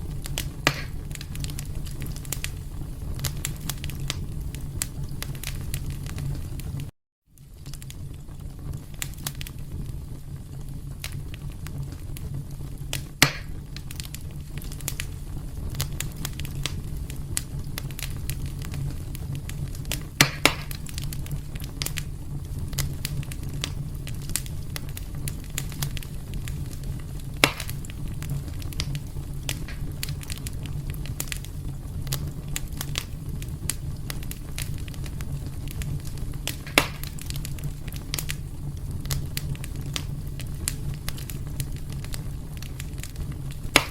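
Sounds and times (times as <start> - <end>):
fire pops: 0.0 - 43.9
wood fire crackling: 0.0 - 43.9.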